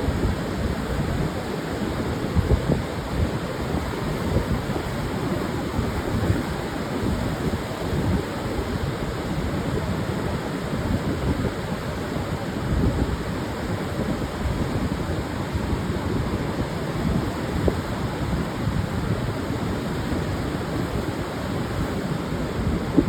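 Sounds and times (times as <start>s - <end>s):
surf washing onto sandy beach: 0.0s - 23.0s
wind rumbling on microphone: 0.0s - 23.0s.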